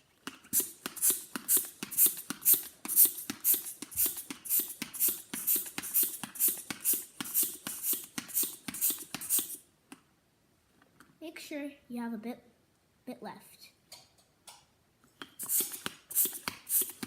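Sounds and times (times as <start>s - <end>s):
hand pump puffing air: 0.0s - 9.7s, 15.2s - 17.0s.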